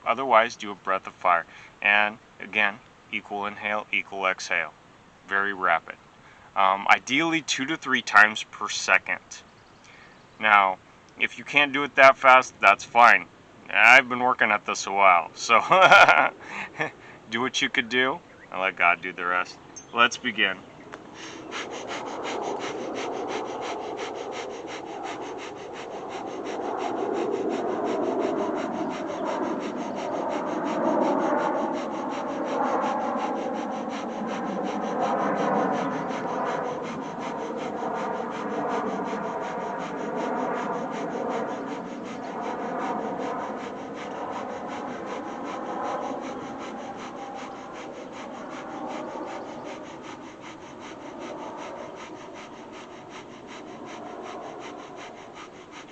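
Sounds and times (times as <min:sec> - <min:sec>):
rapid forceful breathing through nose: 0:01.4 - 0:01.8, 0:21.0 - 0:55.9.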